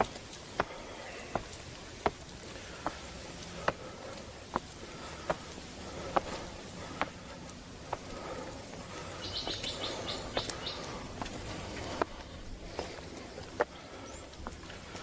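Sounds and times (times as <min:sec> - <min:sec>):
bird high chirps: 0:09.2 - 0:11.0.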